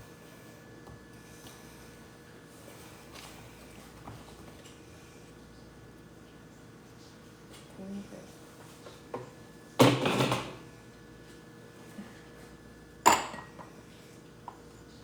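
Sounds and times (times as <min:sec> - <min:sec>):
dishes clattering: 0:09.8 - 0:10.6, 0:13.1 - 0:13.7.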